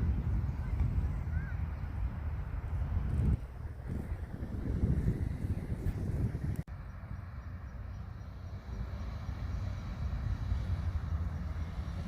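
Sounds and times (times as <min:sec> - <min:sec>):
wind buffeting microphone: 0:00.0 - 0:06.7.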